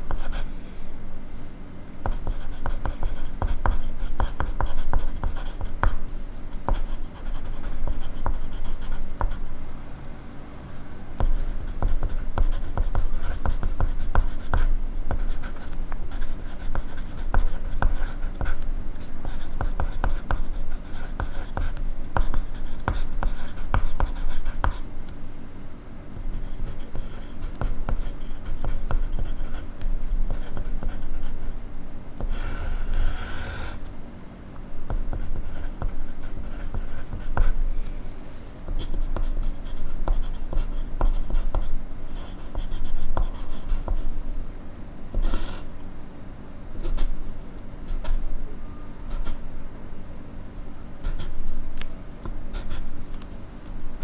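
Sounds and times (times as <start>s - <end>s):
pencil scratching on paper: 2.1s - 9.4s, 11.2s - 24.8s, 32.2s - 33.8s, 38.7s - 44.1s, 45.2s - 45.7s.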